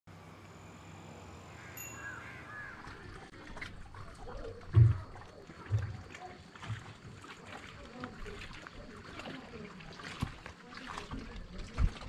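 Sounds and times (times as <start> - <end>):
birds calling: 0.1 - 5.6
outdoor ambience: 0.1 - 12.0.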